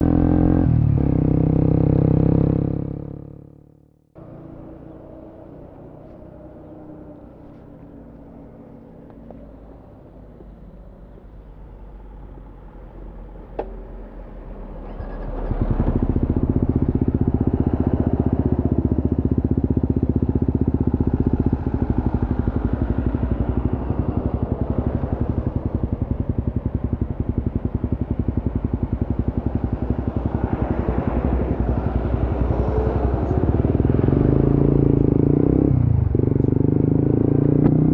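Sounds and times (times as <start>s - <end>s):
motorcycle engine running: 14.8s - 37.9s.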